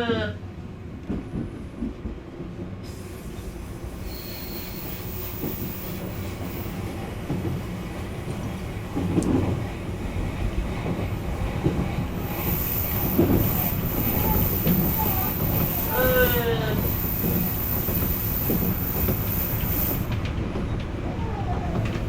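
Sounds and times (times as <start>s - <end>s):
train wheels rumbling on rail: 0.2s - 22.0s.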